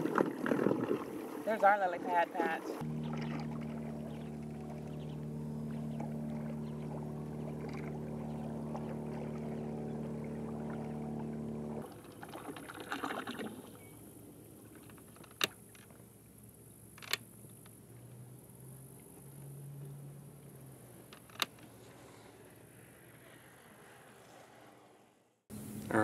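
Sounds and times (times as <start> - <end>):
water swishing: 0.0 - 14.9
boat motor running: 0.0 - 23.0.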